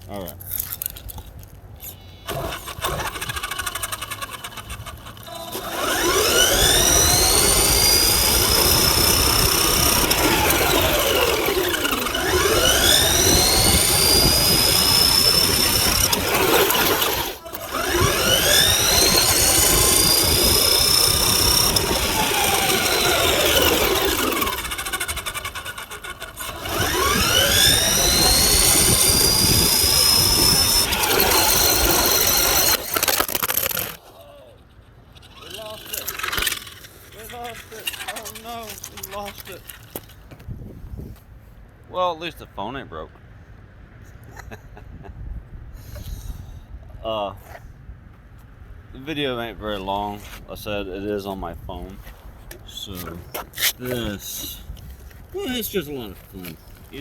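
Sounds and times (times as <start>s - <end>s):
electric motor whining: 2.2s - 34.1s, 35.2s - 40.1s.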